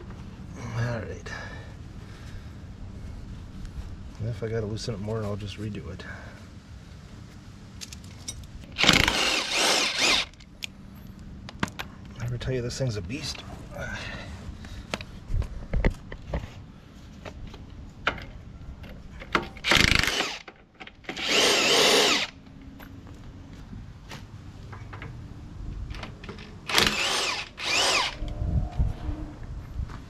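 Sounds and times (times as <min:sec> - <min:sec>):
handheld power tool spinning: 0:08.8 - 0:10.4, 0:19.6 - 0:20.5, 0:21.1 - 0:22.4, 0:26.6 - 0:28.3.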